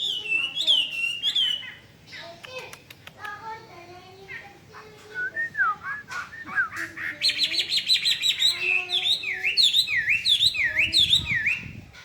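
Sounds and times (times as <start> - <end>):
bird singing whistles and trills: 0.0 - 1.8, 5.1 - 11.8.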